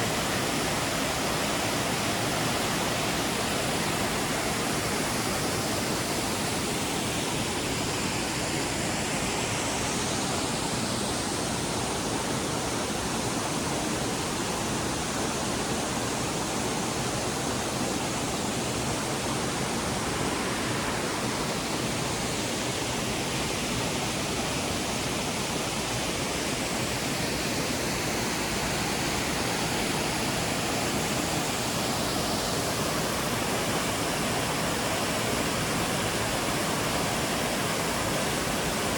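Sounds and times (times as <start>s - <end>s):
waterfall rushing: 15.8s - 38.9s.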